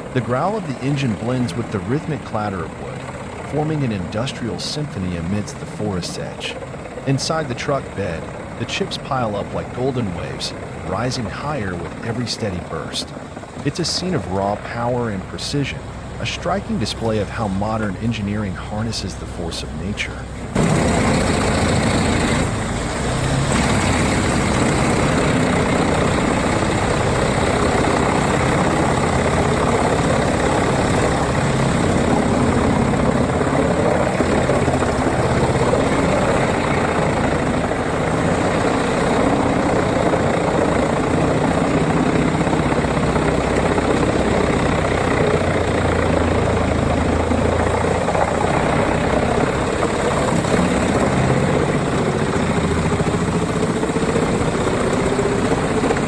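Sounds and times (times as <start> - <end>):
wood chipper engine: 20.4 - 56.0.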